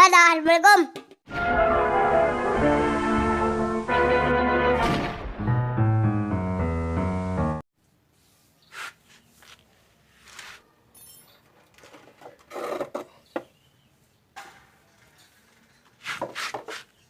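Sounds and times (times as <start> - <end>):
intro music: 1.3 - 7.6.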